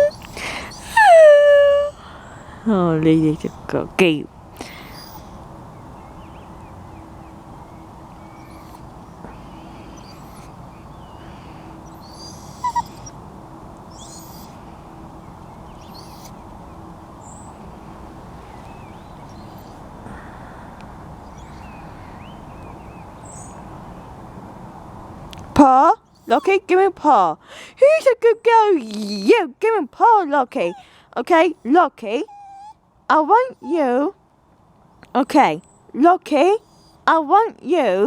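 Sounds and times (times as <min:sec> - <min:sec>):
outdoor background noise: 0:00.0 - 0:38.0
bird hooting: 0:09.6 - 0:13.1.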